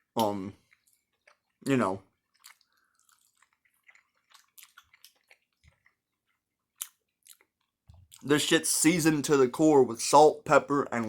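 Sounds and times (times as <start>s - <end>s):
person chewing food: 0.0s - 8.3s.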